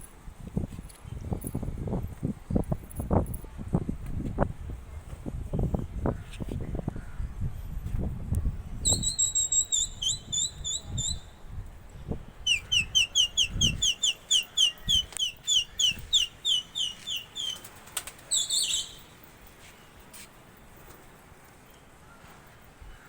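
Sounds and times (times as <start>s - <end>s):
bird chirping: 8.8s - 11.3s, 12.5s - 19.2s.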